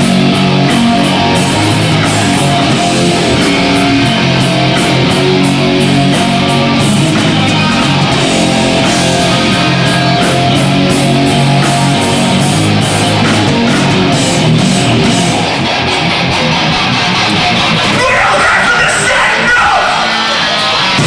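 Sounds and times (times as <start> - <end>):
drums with cymbal hits: 0.0 - 15.6
distorted electric guitar riff: 0.0 - 21.0
person shouting vocals: 17.9 - 20.2.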